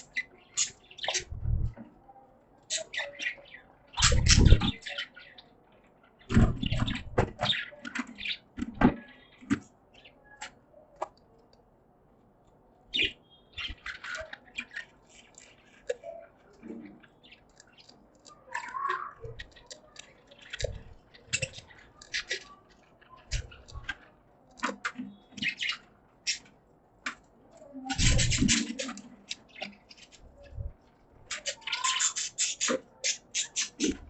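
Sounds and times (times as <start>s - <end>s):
budgies chirping: 0.0s - 1.9s, 2.6s - 10.6s, 12.9s - 34.0s.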